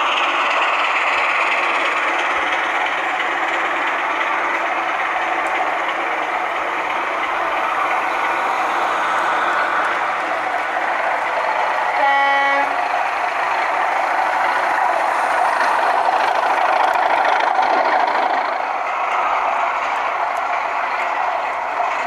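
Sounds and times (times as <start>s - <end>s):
model train running: 0.0s - 22.0s
model train horn blast: 11.9s - 12.8s.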